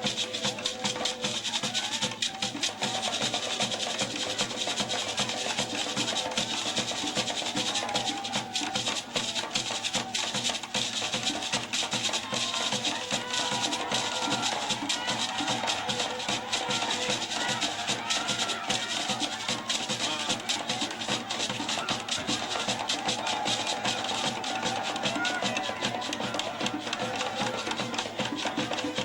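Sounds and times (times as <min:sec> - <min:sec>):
african drumming: 0:00.0 - 0:29.0
faint singing voices: 0:00.0 - 0:29.0
shakers rattling: 0:00.0 - 0:29.0.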